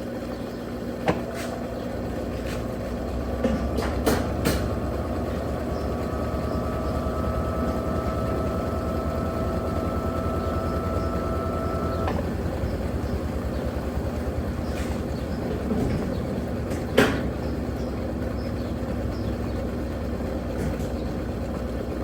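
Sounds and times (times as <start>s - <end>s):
washing machine rumbling: 0.6s - 22.0s
steady whine: 2.9s - 12.3s.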